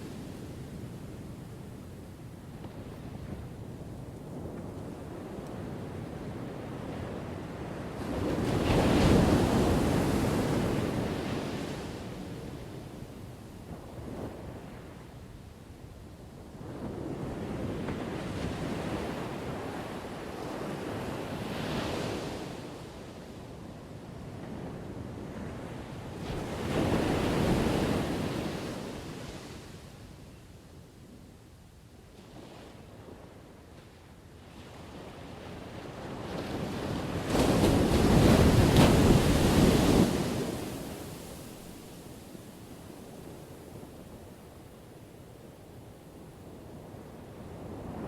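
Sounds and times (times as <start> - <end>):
ocean waves washing: 37.0 - 43.9.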